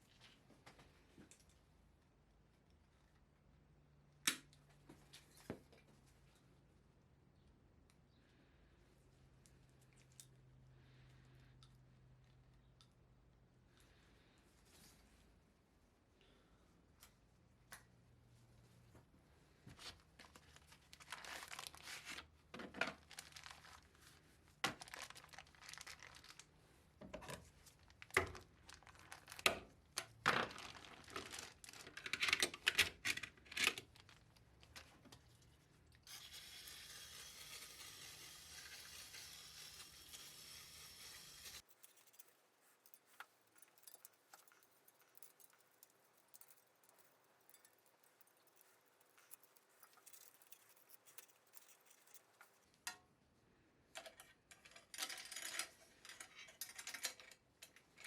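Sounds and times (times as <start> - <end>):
plastic or paper crinkling and tearing: 20.2 - 22.3, 22.9 - 26.5, 27.6 - 35.0.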